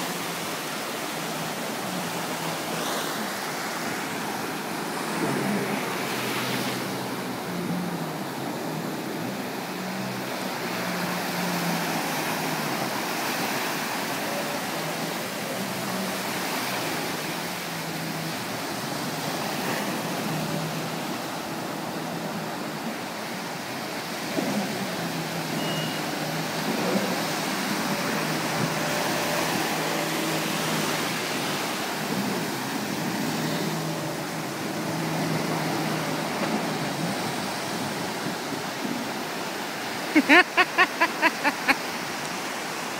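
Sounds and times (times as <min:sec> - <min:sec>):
jet ski engine revving: 0:00.0 - 0:40.3
surf washing: 0:00.0 - 0:42.9
wind: 0:00.0 - 0:42.9.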